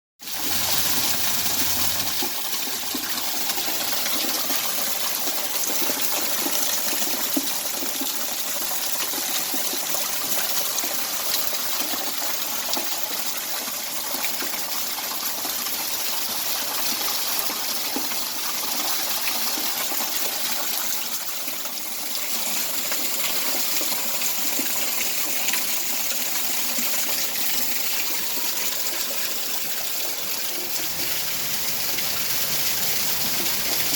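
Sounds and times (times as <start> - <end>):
heavy rain pouring: 0.2 - 5.2, 29.6 - 33.9.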